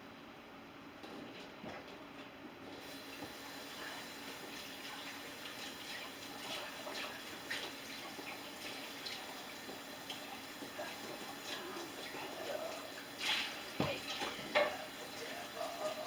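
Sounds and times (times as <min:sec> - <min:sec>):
kitchen tap running: 0:02.8 - 0:16.0
dishes clinking: 0:13.3 - 0:16.0.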